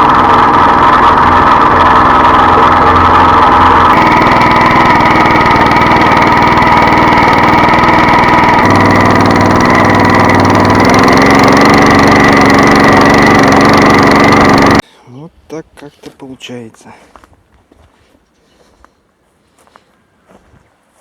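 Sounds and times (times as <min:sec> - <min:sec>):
walk-behind tractor engine running: 0:00.0 - 0:14.8.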